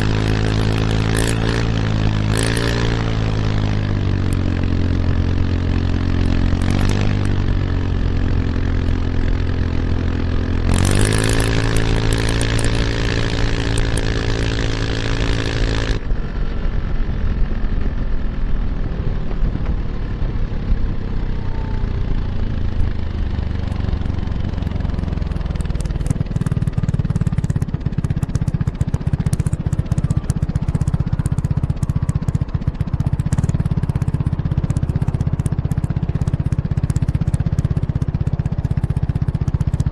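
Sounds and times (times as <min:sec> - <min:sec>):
scooter engine running: 0:00.0 - 0:39.9
low rumble: 0:11.5 - 0:38.9.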